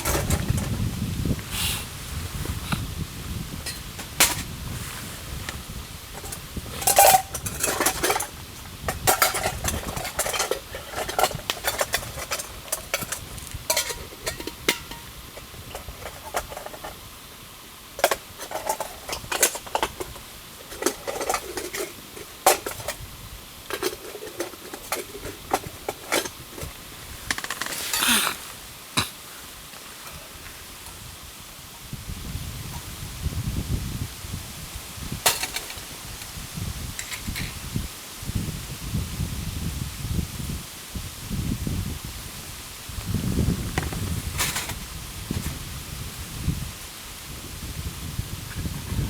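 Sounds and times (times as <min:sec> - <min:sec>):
cookware clinking and clattering: 0:06.2 - 0:17.0, 0:18.0 - 0:23.0, 0:23.7 - 0:26.7, 0:35.3 - 0:35.8.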